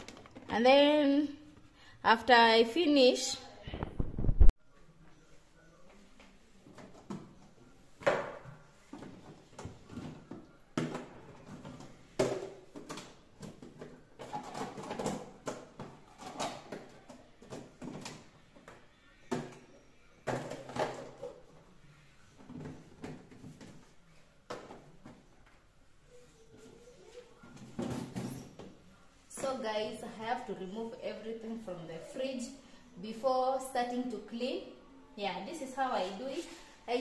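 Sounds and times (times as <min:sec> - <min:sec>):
items knocking and clattering: 0:00.0 - 0:00.6, 0:06.6 - 0:21.6, 0:22.4 - 0:25.4, 0:27.5 - 0:28.8.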